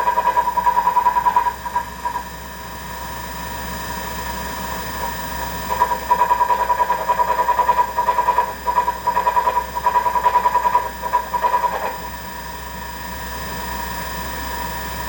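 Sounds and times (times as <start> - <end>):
steady motor hum: 0.0 - 15.0
treadmill motor rhythmic rumbling: 3.9 - 12.4.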